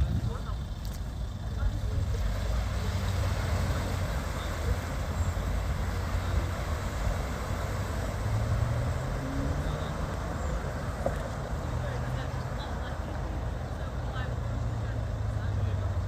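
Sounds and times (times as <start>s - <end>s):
low rumble: 0.0s - 11.7s.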